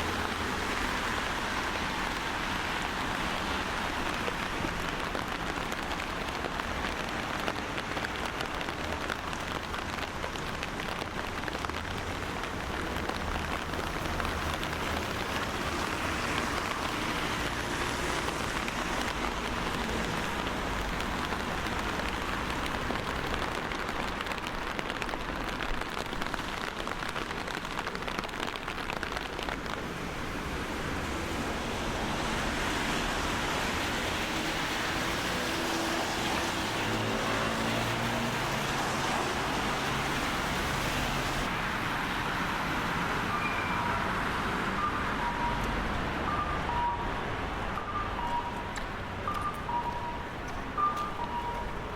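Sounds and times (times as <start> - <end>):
steady rain pattering: 0.0 - 51.9.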